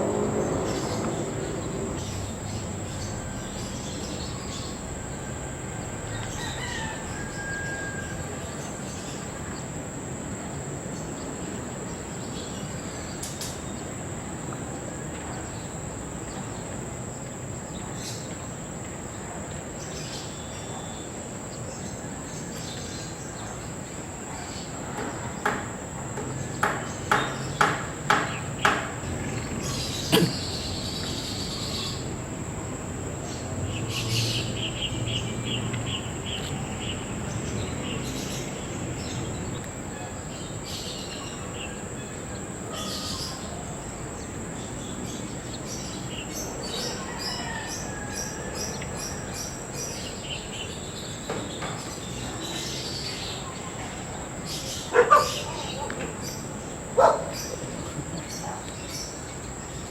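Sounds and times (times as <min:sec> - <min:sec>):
steady high-pitched whine: 0:00.0 - 0:27.8
small birds chirping: 0:00.0 - 0:59.9.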